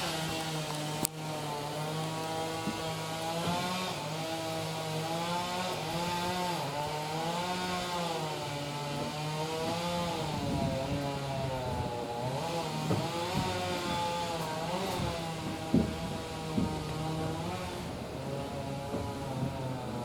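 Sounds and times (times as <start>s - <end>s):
train buzzing hum: 0.0s - 20.0s.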